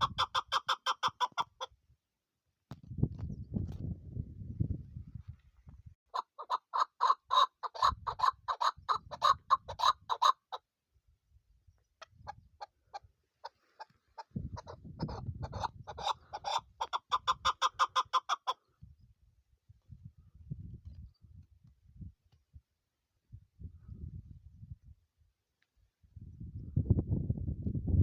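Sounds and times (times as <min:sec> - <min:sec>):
partridge clucking call: 0:00.0 - 0:01.7, 0:06.1 - 0:10.6, 0:12.0 - 0:18.6.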